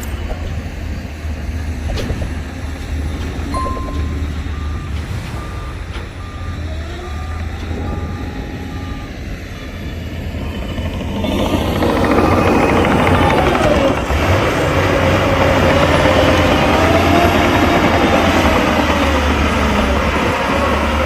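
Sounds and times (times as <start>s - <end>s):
heavy diesel machinery running: 0.0s - 21.0s
reversing alarm beeping: 3.6s - 13.7s.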